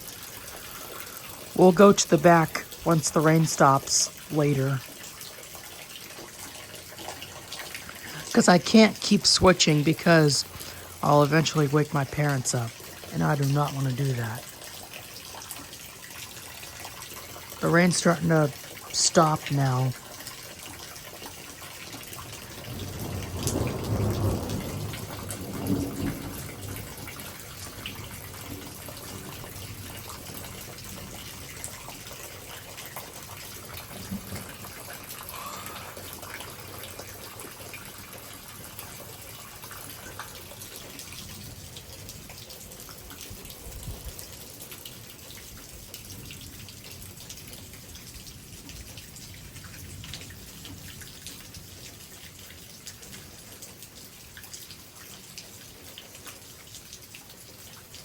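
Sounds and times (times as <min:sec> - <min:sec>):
light rain dripping: 0:00.0 - 0:58.0
low rumble of thunder: 0:22.3 - 0:31.6, 0:33.8 - 0:35.0.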